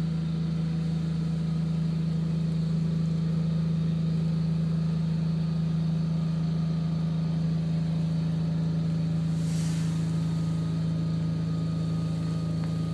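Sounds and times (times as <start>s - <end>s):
engine idling: 0.0s - 12.9s
brief hiss: 9.3s - 10.8s.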